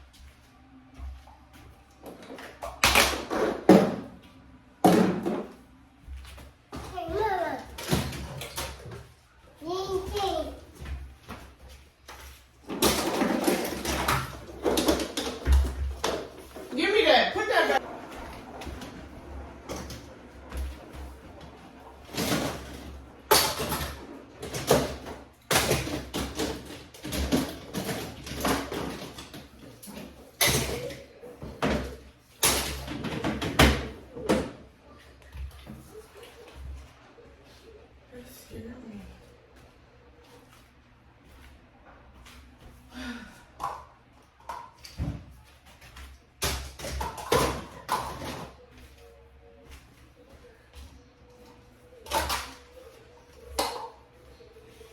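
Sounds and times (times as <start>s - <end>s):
hard objects knocking and clattering: 12.6s - 16.7s.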